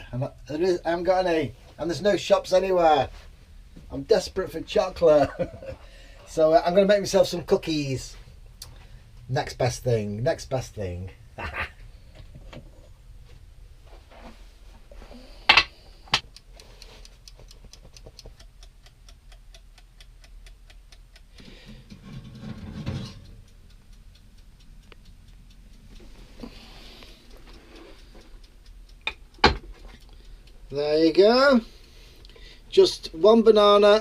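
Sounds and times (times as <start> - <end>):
sharp clicks: 16.2 - 22.0, 23.2 - 30.8
rapid mechanical ticking: 16.2 - 34.0.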